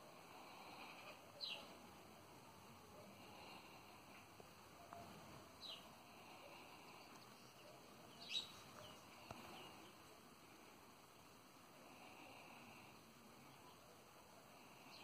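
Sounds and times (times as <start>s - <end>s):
faint bird chirps: 0.5s - 1.9s, 2.9s - 10.6s, 12.2s - 15.0s.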